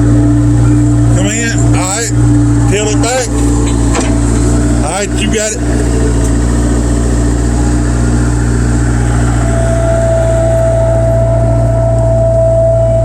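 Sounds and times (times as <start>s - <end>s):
diesel engine running: 0.0s - 13.0s
high steady whine: 0.0s - 13.0s.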